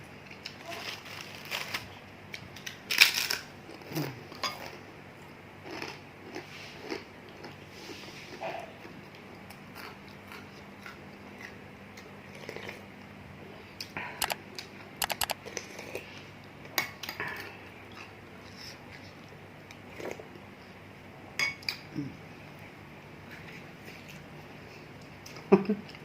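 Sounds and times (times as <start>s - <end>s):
chewing: 5.7s - 12.9s, 17.0s - 20.3s.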